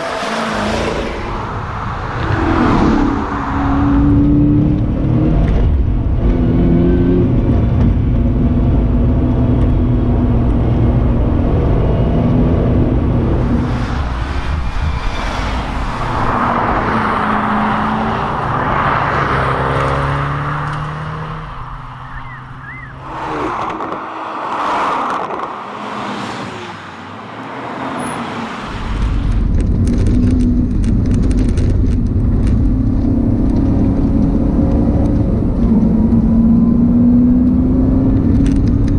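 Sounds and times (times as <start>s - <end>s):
car engine revving through gears: 2.2s - 13.7s, 16.3s - 26.3s, 32.4s - 38.9s.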